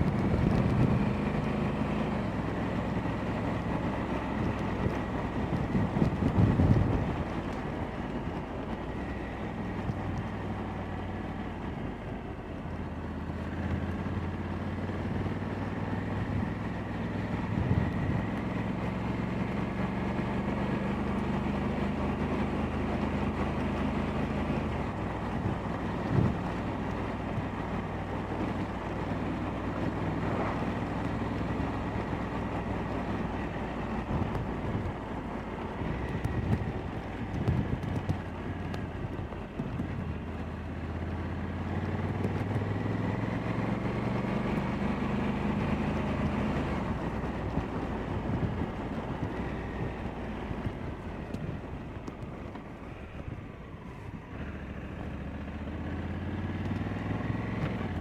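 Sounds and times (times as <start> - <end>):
motorcycle engine running: 0.0 - 58.0
wind on microphone: 5.4 - 7.9, 46.2 - 52.3.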